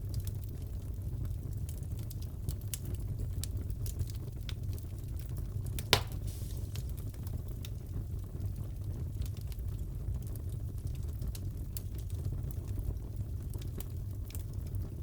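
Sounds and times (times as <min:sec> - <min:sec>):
wood fire crackling: 0:00.0 - 0:15.0
loud pop from fire: 0:05.8 - 0:07.5.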